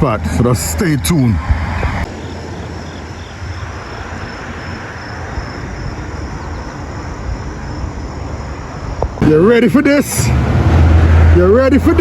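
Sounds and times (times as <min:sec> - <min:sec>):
car driving rumble: 0:00.0 - 0:12.0
insect chirps: 0:02.0 - 0:10.2.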